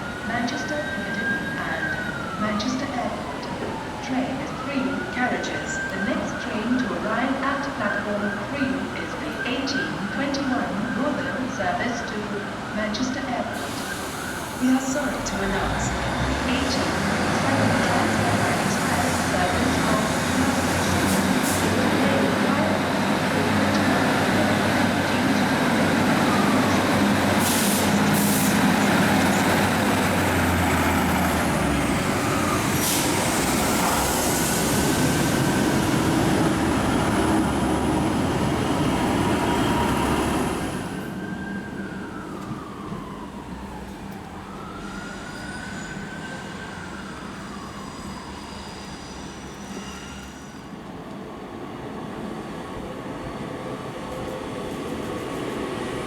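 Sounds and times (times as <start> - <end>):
train rumble: 13.0 - 43.4
train whining tones: 13.6 - 51.3.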